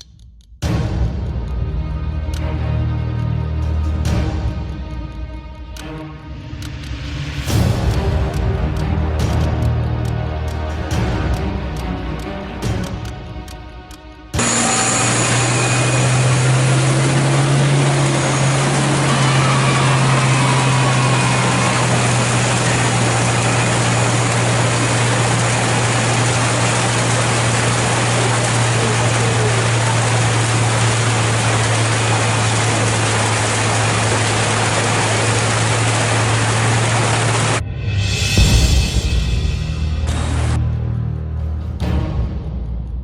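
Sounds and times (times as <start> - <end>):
heavy rain and floodwater rushing: 14.4 - 37.6, 40.0 - 40.6
truck engine idling: 14.4 - 37.6.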